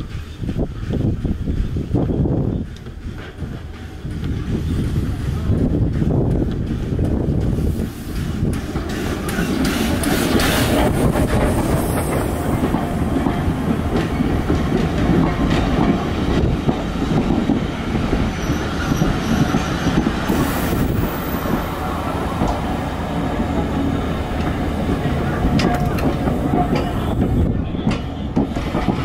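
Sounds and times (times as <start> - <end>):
train wheels rumbling: 0.0 - 29.0
clatter over rail joints: 24.3 - 29.0.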